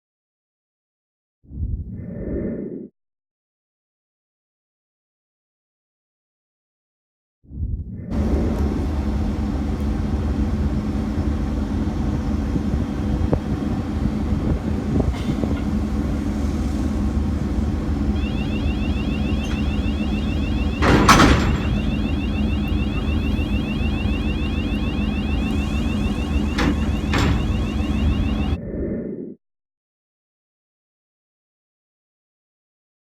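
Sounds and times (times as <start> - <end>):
boat diesel engine rumbling: 8.2 - 28.6
high-pitched repeating chirp: 18.2 - 28.6.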